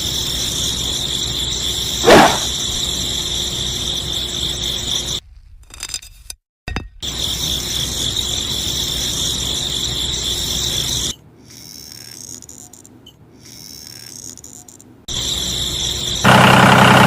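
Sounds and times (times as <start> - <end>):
electric motor high-pitched whine: 15.1 - 17.0.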